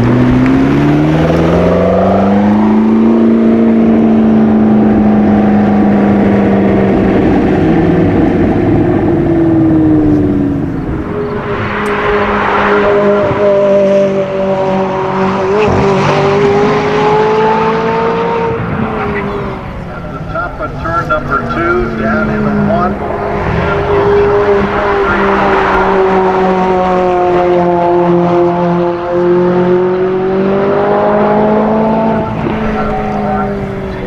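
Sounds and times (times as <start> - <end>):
rushes of noise: 0.0 - 34.0
sports car engines revving: 0.0 - 34.0.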